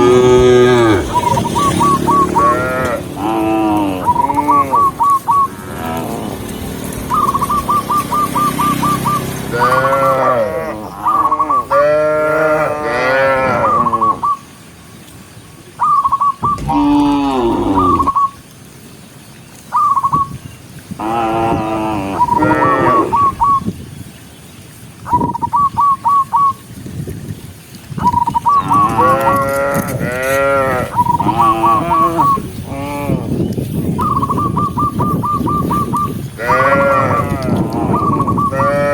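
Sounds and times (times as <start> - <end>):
cows mooing: 0.0 - 6.5, 9.5 - 14.2, 16.5 - 18.2, 21.0 - 23.4, 28.6 - 33.4, 36.4 - 38.9.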